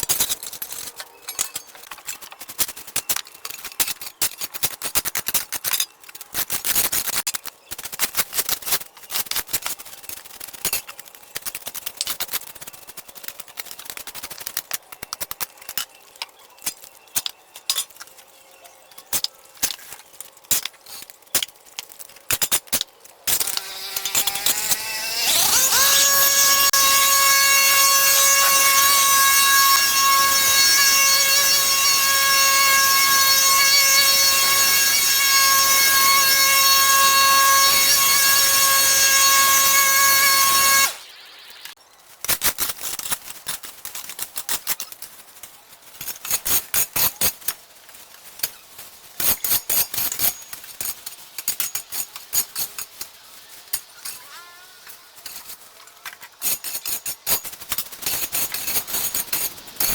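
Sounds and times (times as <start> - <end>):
clicks and scrapes: 0.0 - 27.2, 49.2 - 59.9
power tool motor whine: 23.3 - 41.7.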